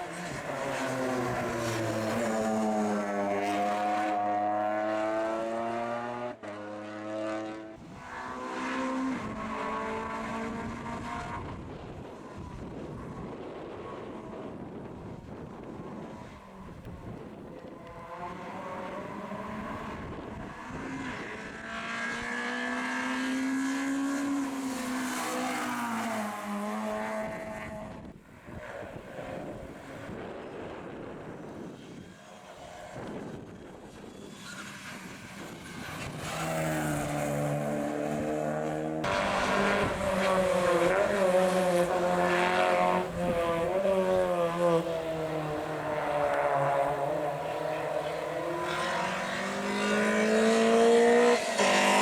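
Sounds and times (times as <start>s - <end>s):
car accelerating hard: 0.0s - 31.7s, 32.9s - 52.0s
rally car engine revving past: 0.1s - 11.6s, 17.6s - 28.1s, 35.8s - 52.0s.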